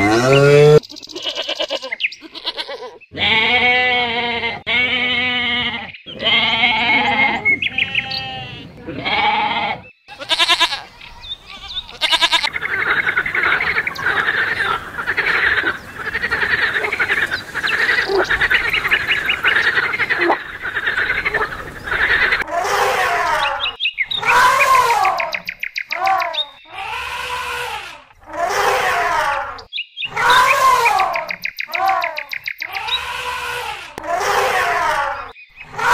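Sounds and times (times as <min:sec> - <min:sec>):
frogs croaking in chorus: 0:09.0 - 0:22.5, 0:23.4 - 0:28.3, 0:29.6 - 0:33.6
drawn-out frog calls: 0:10.1 - 0:22.5, 0:29.6 - 0:34.1.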